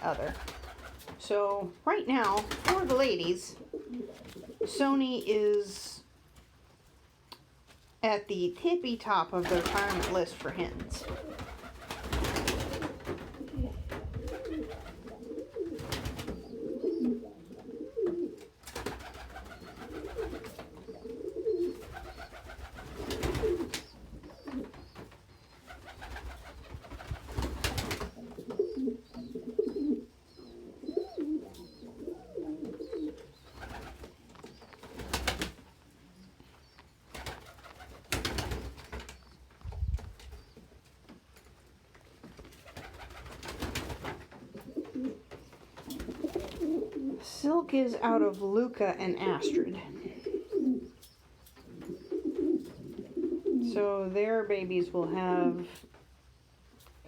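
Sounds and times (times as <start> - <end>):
pigeons cooing: 2.3 - 4.8, 10.8 - 39.3, 42.6 - 47.3, 49.1 - 53.8.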